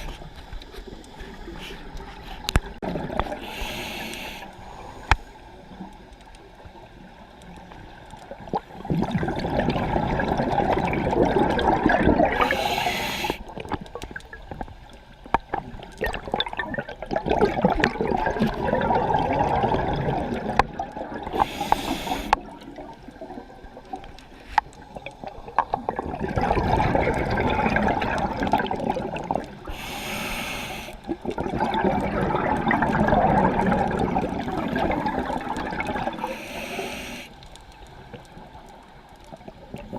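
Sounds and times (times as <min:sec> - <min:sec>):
regulator air hiss: 0:03.4 - 0:05.4, 0:12.4 - 0:13.4, 0:21.4 - 0:22.4, 0:29.7 - 0:31.0, 0:36.2 - 0:37.4
exhaust bubbling underwater: 0:08.4 - 0:12.9, 0:15.5 - 0:21.4, 0:24.9 - 0:29.7, 0:31.1 - 0:36.4.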